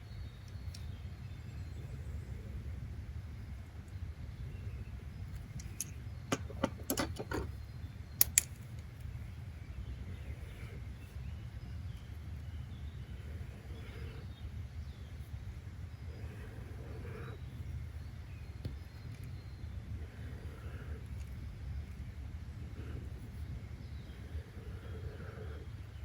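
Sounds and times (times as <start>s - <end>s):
sharp clicks: 8.2s - 8.6s.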